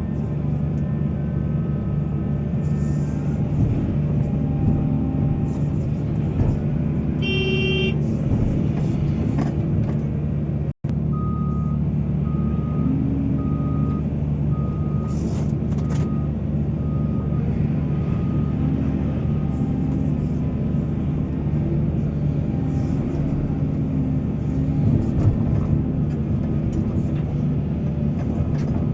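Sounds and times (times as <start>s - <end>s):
heavy diesel machinery running: 0.0s - 28.9s
short horn toot: 7.2s - 8.9s
reversing alarm beeping: 11.1s - 18.8s.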